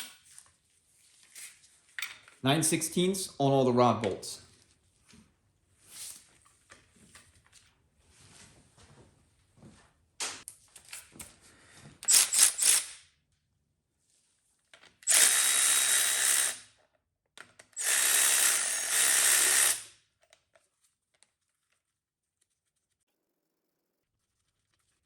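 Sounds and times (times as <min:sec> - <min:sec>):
power tool spinning out bolts: 0:12.0 - 0:13.0, 0:15.0 - 0:16.6, 0:17.8 - 0:19.9.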